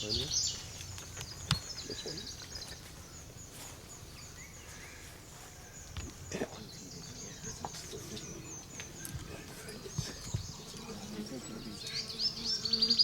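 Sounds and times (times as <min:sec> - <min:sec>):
high insect buzz: 0:00.0 - 0:13.0
small birds chirping: 0:00.0 - 0:13.0.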